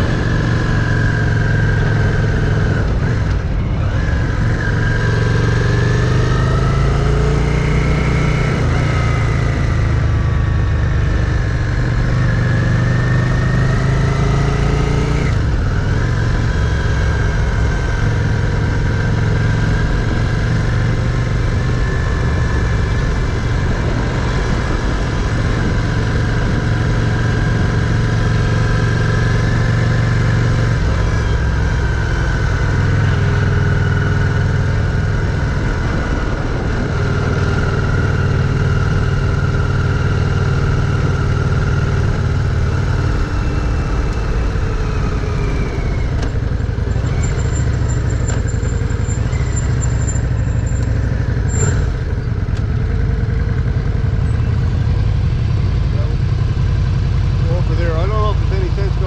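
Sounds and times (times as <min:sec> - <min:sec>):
wind rushing over microphone: 0:00.0 - 0:06.8, 0:19.3 - 0:31.6, 0:32.6 - 0:47.2
motorcycle engine running: 0:00.0 - 0:59.0.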